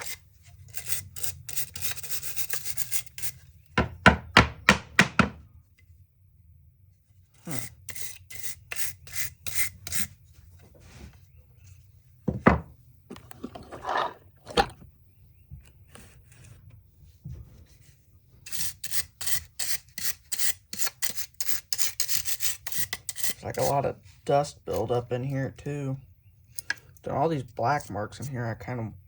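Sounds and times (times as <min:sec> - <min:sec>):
sharp knocks: 0:03.8 - 0:05.4.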